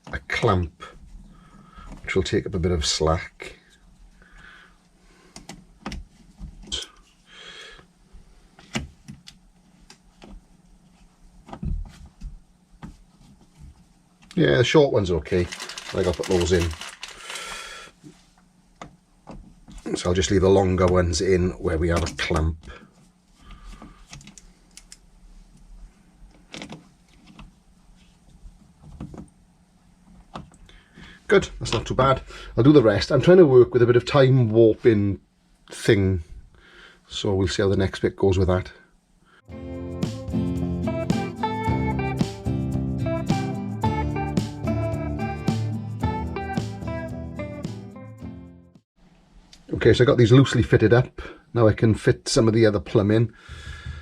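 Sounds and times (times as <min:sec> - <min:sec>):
low steady hum: 0:00.0 - 0:39.5.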